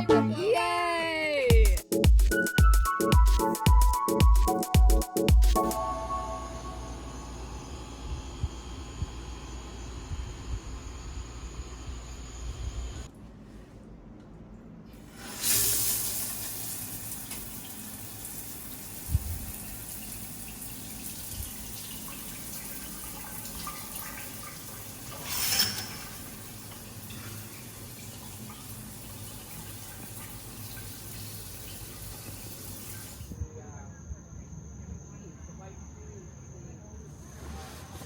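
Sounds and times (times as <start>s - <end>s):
shower water spraying: 15.1s - 33.3s.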